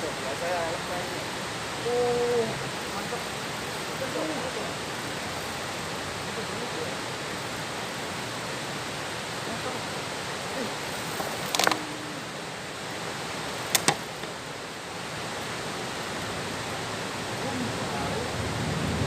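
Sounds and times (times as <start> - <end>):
river water rushing: 0.0 - 19.0
sharp clicks: 13.7 - 14.4.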